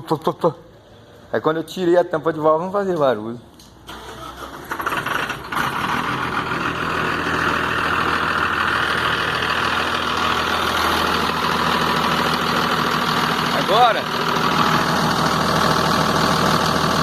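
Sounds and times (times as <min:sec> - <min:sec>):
diesel engine idling: 0:03.9 - 0:17.0.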